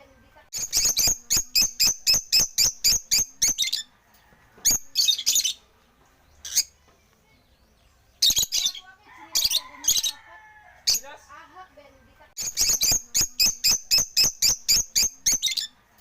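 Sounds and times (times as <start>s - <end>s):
lovebirds chirping: 0.0s - 16.0s.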